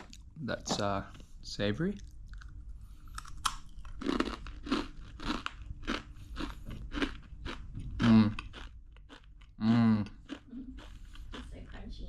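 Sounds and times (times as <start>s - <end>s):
crunchy snack chewing: 2.0s - 11.5s
person humming: 8.0s - 8.4s, 9.6s - 10.1s.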